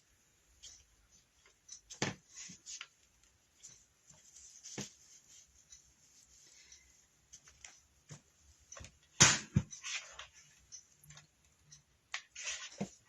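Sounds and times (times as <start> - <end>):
fabric rustling: 0.5 - 10.7.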